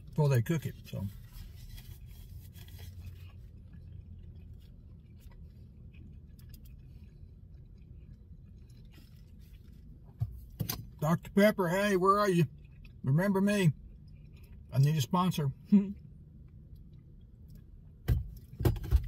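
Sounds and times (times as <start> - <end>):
steady low hum: 0.0 - 19.0
man chewing softly: 0.8 - 10.6, 12.4 - 13.1, 13.7 - 14.9, 15.9 - 18.6.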